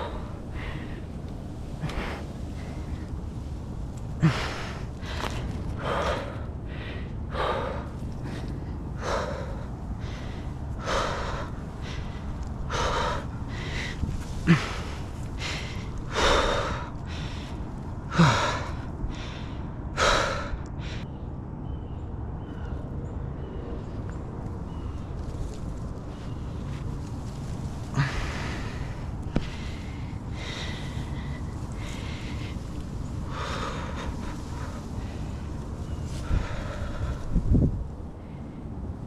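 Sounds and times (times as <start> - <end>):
heavy breathing from exertion: 0.0 - 21.2, 26.1 - 39.0.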